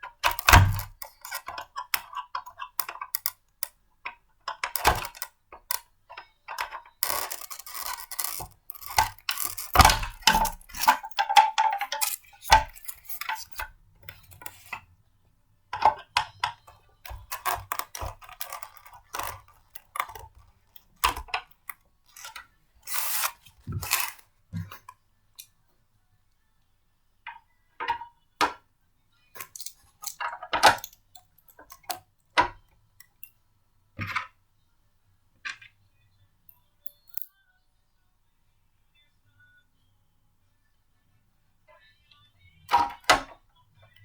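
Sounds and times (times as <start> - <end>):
blender parts clicking and rattling: 0.1 - 3.7, 4.5 - 14.8, 15.8 - 24.9, 29.4 - 32.0.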